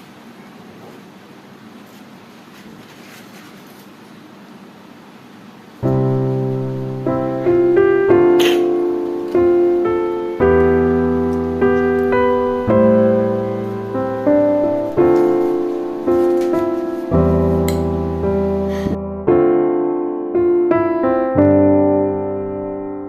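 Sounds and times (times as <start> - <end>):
faint room noise: 0.0 - 23.0
gentle piano music: 5.8 - 23.0.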